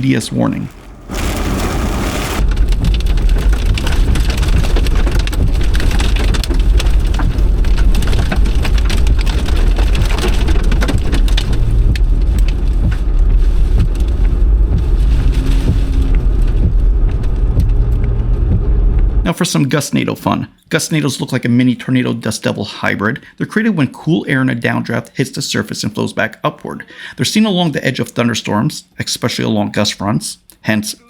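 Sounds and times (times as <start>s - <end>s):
rain pelting a car: 0.1s - 19.3s.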